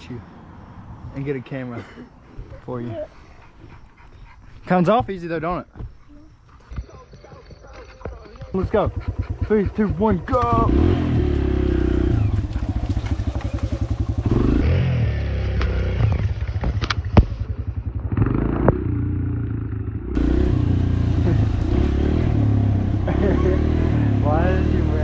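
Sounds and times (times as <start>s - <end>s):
dirt bike engine revving: 8.6s - 25.0s.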